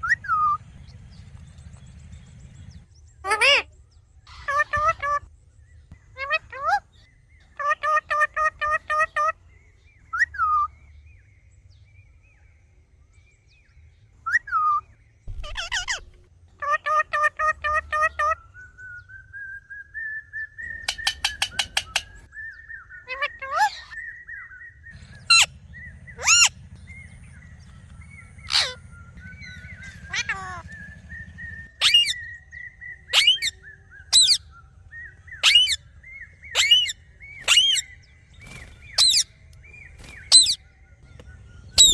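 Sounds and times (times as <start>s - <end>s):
parrot chirping and screeching: 3.2s - 3.7s, 4.3s - 5.3s, 6.2s - 7.0s, 14.3s - 18.4s, 23.0s - 24.0s, 25.0s - 25.5s, 26.1s - 26.5s, 28.3s - 30.6s, 31.8s - 32.4s, 33.0s - 34.5s, 35.4s - 35.8s, 36.4s - 39.3s, 40.2s - 40.6s
faint whistling tone: 18.4s - 21.0s.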